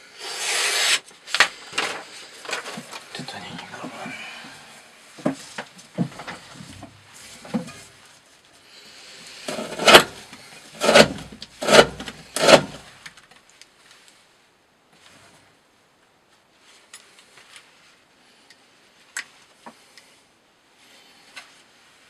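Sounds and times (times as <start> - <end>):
knife sawing through rope: 0.0 - 1.0, 9.4 - 12.9.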